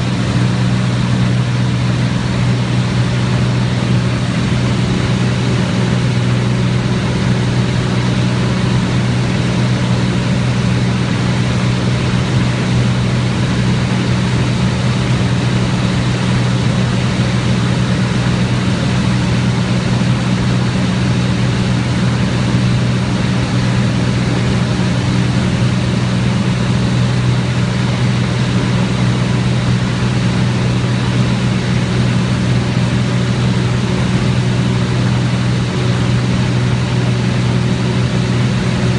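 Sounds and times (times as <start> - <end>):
airplane engine droning: 0.0 - 38.9.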